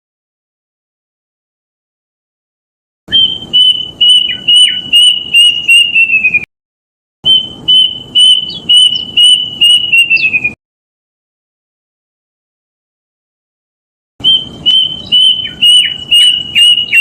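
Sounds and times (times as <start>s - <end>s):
cuckoo whistled song: 3.1s - 6.5s, 7.2s - 10.6s, 14.2s - 17.0s.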